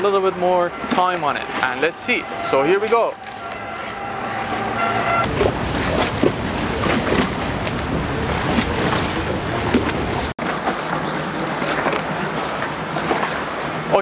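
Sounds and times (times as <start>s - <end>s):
low rumble of boat traffic: 0.0s - 14.0s
water: 0.0s - 14.0s
wind noise on microphone: 3.2s - 10.3s.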